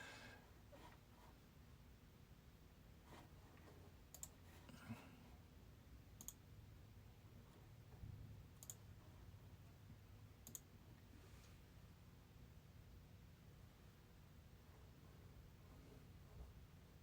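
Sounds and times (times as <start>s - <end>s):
low room hum: 0.0s - 17.0s
faint sharp clicks: 8.6s - 8.8s, 10.4s - 10.7s.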